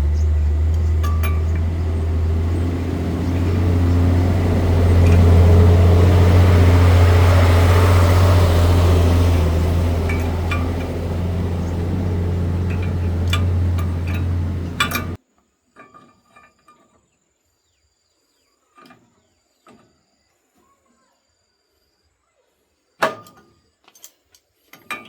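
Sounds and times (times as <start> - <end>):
machine motor humming: 0.0 - 15.2
knocks and clinks: 0.6 - 6.9, 9.4 - 15.2.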